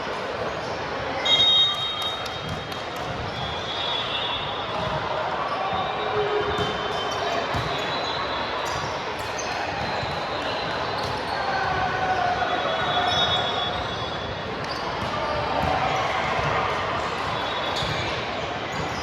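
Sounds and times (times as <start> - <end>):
balls bouncing on court floor: 1.9 - 3.7, 4.6 - 5.2, 5.8 - 11.9, 12.7 - 19.0.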